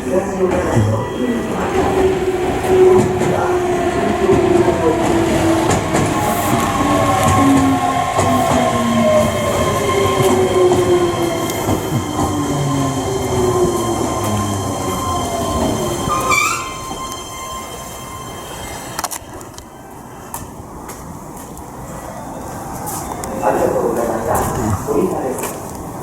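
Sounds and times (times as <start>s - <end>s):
rumble of train wheels: 0.0s - 26.0s
train brake squeal: 11.4s - 18.9s.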